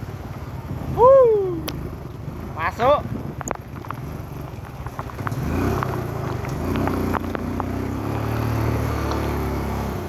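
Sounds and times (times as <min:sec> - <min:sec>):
sharp ticks and taps: 0:03.4 - 0:04.0.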